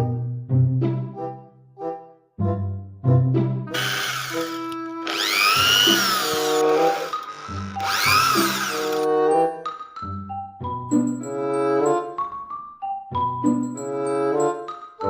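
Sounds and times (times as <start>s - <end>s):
light background music: 0.0s - 15.0s
toy power tool whirring: 3.7s - 9.1s.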